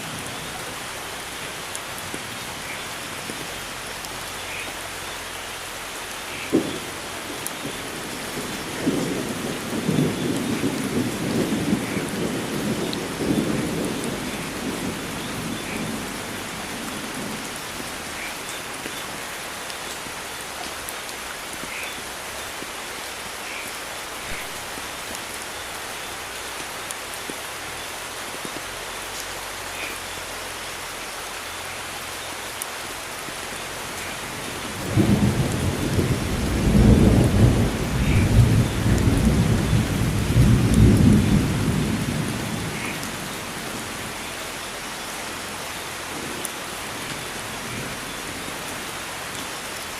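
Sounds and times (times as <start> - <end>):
heavy rain hissing: 0.0 - 49.9
thunder rolling: 6.5 - 18.1, 34.3 - 43.9.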